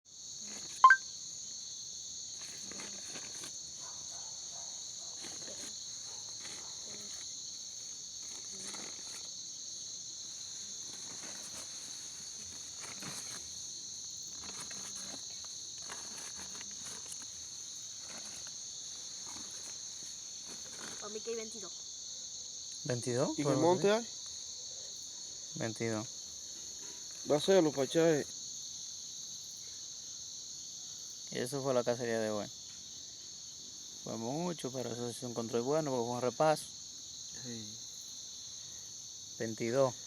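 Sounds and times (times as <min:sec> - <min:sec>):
insects chirring: 0:00.1 - 0:40.0
faint rustling steps: 0:10.2 - 0:21.4.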